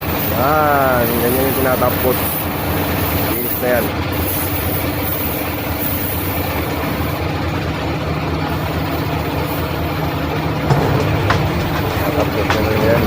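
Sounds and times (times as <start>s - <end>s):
hiss: 0.0s - 7.2s
engine running with low hum: 0.0s - 13.0s.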